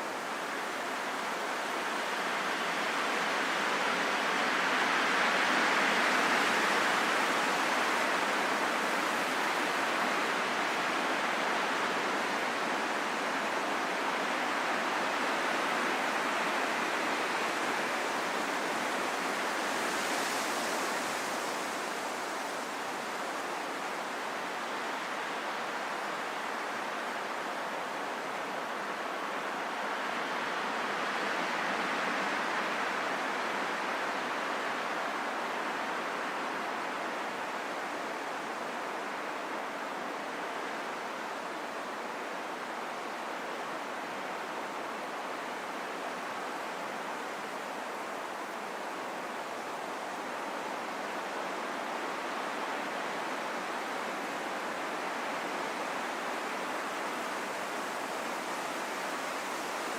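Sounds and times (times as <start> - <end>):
rain falling in forest: 0.0 - 59.9.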